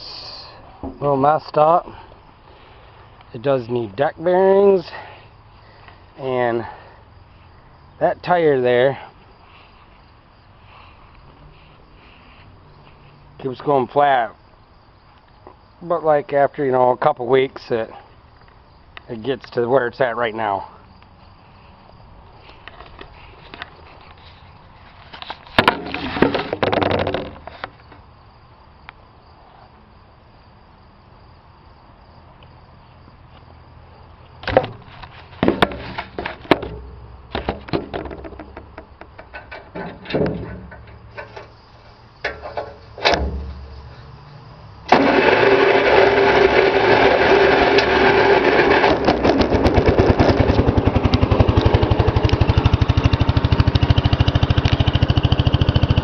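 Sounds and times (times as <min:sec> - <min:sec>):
scattered clicks and knocks: 0:25.1 - 0:27.7, 0:34.4 - 0:41.6, 0:42.2 - 0:43.6, 0:48.8 - 0:52.4
engine starting and running: 0:39.2 - 0:44.2, 0:44.8 - 0:56.0.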